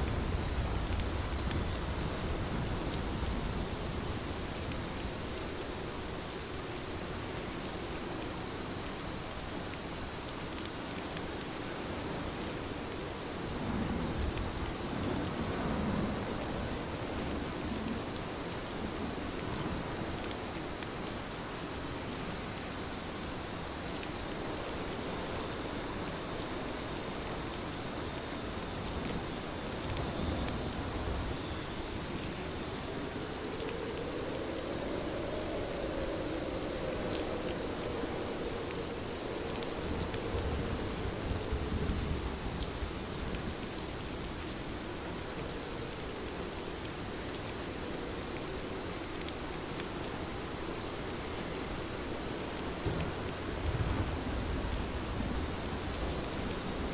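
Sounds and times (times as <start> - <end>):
heavy rain falling: 0.0 - 56.9.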